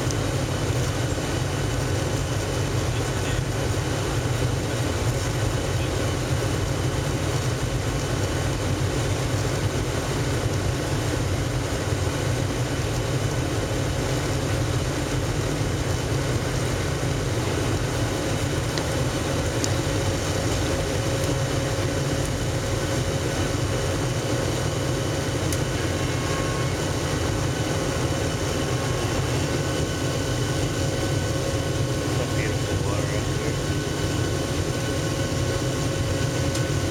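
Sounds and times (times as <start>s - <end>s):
jet engines running: 0.0s - 36.9s.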